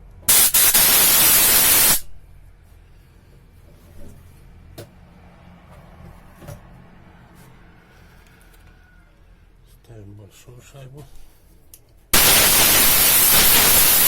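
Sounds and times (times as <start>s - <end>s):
compressed air hissing: 0.3s - 2.1s, 12.2s - 14.0s.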